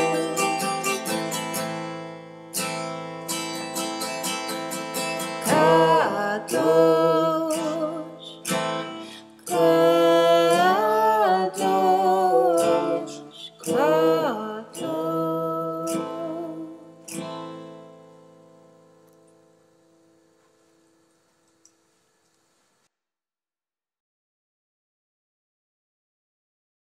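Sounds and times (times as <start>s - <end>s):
person singing: 0.0s - 1.6s, 5.3s - 17.1s
strummed acoustic guitar: 0.0s - 21.1s.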